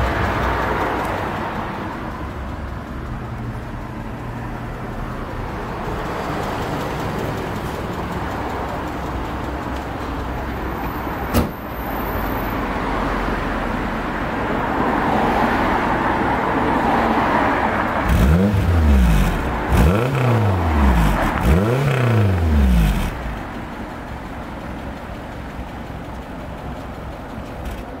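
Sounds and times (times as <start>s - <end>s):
car engine revving and idling: 17.8s - 28.0s.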